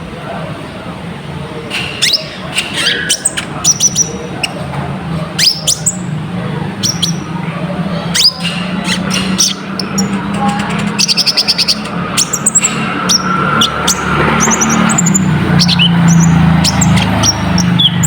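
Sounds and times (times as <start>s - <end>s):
sunbird chattering song: 1.9s - 4.7s, 5.3s - 18.0s.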